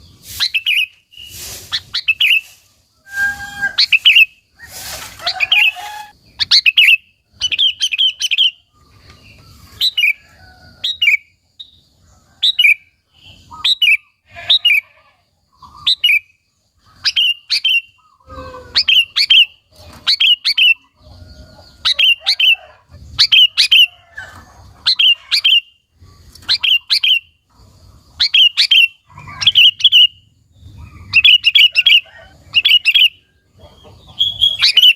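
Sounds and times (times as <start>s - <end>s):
noisy rustles: 0.0s - 6.2s
bulbul singing: 5.5s - 10.2s, 28.1s - 34.9s.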